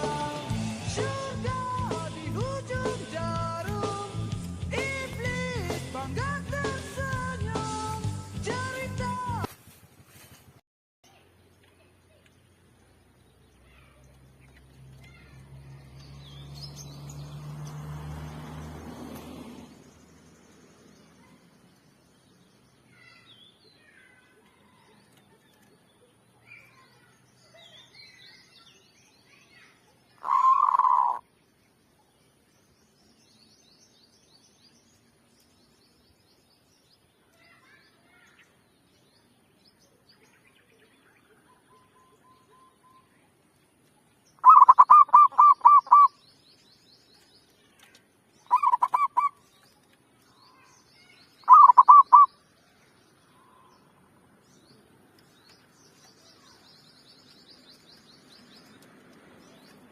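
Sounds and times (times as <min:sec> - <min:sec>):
small birds chirping: 0:11.0 - 0:59.9
dove cooing: 0:30.2 - 0:31.2, 0:44.4 - 0:46.1, 0:48.5 - 0:49.3, 0:51.5 - 0:52.3.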